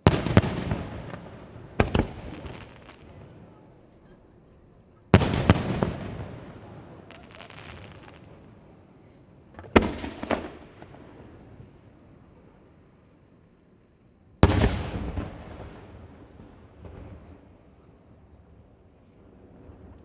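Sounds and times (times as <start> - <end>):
fireworks bang: 0.0 - 3.6, 5.1 - 8.4, 9.6 - 11.1, 14.4 - 15.9
fireworks cracks: 0.0 - 3.6, 5.1 - 8.5
faint crackle: 6.6 - 12.0.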